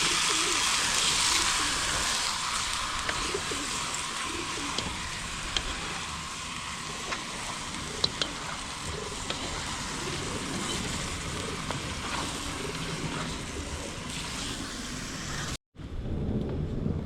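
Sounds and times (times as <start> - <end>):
food sizzling in hot oil: 0.0 - 15.6
wind rumbling on microphone: 15.8 - 17.0.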